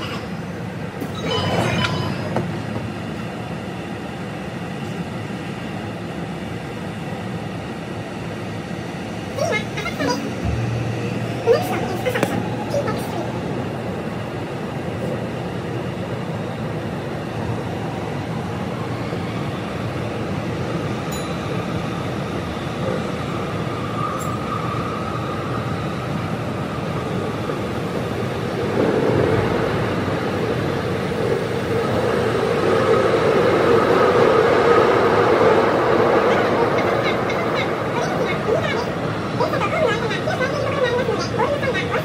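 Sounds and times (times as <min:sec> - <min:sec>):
train rumbling in tunnel: 0:00.0 - 0:42.0
steady hum: 0:09.6 - 0:13.2.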